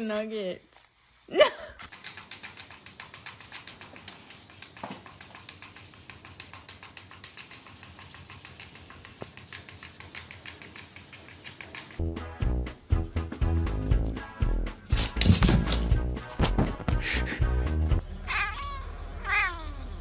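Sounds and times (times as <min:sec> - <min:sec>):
rapid light clicking: 0:01.9 - 0:12.0
music: 0:12.0 - 0:18.0.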